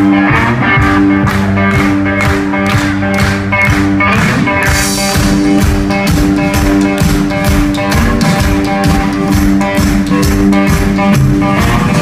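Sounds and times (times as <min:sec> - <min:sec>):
drum beat: 0:00.0 - 0:12.0
electric guitar blues riff: 0:00.0 - 0:12.0.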